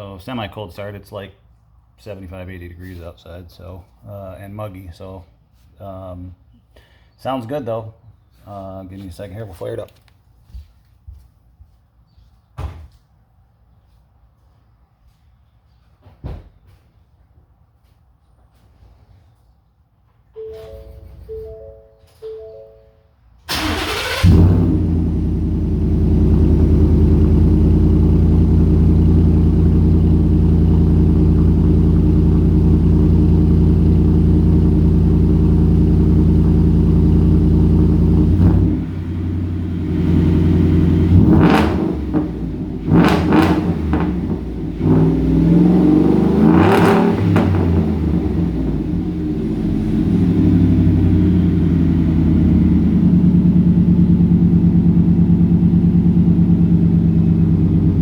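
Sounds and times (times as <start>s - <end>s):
car engine idling and revving: 23.5s - 58.0s.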